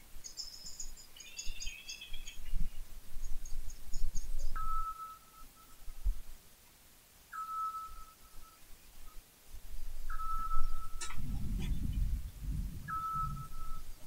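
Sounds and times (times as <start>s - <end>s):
small birds twittering: 0.2s - 5.9s, 10.1s - 14.0s
steady whistled bird note: 12.8s - 14.0s.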